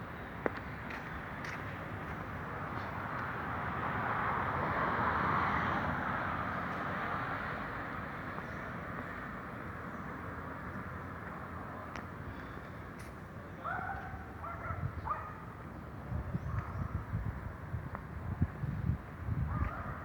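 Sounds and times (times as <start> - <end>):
vehicle passing by: 3.3 - 8.3.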